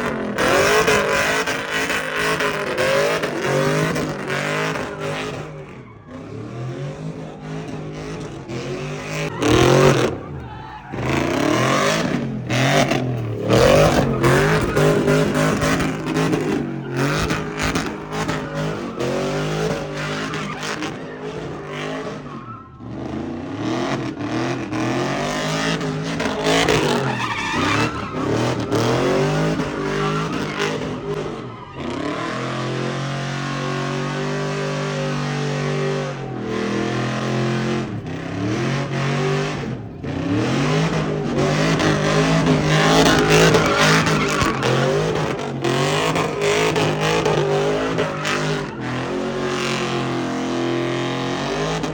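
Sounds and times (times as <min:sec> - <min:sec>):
car engine revving: 0:00.0 - 0:51.9
tyres screeching: 0:07.4 - 0:22.7, 0:26.2 - 0:32.7, 0:40.1 - 0:51.9.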